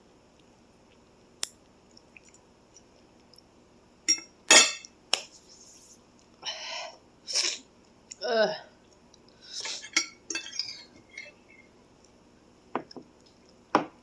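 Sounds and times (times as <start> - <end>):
utensil clinking against dish: 4.1 - 4.9, 9.6 - 11.4.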